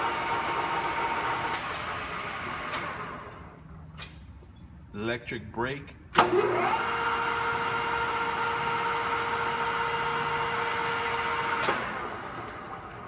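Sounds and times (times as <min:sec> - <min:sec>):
lathe running with steady whine: 0:00.0 - 0:03.4, 0:06.2 - 0:13.0.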